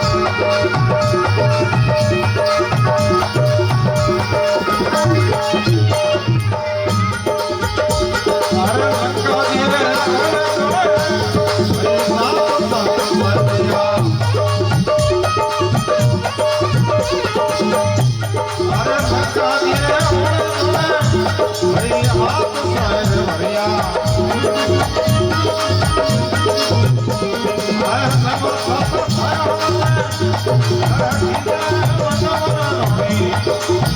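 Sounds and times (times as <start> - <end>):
steady percussion beat: 0.0 - 33.9
sustained melodic accompaniment: 0.0 - 33.9
person singing: 18.4 - 25.6.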